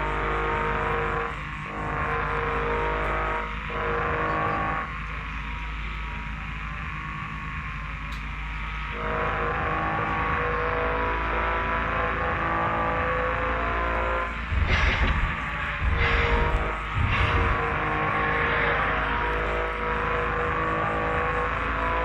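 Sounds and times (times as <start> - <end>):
van engine and road drone: 0.0 - 22.0.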